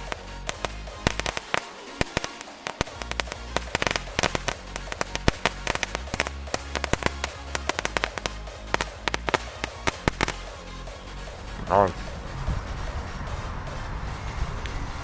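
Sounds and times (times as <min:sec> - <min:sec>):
firecrackers popping: 0:00.0 - 0:11.9
background music: 0:00.0 - 0:15.0.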